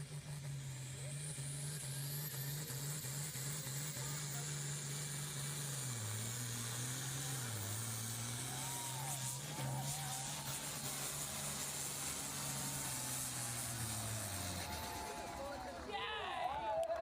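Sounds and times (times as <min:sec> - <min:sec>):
distant engine running: 0:00.0 - 0:15.9.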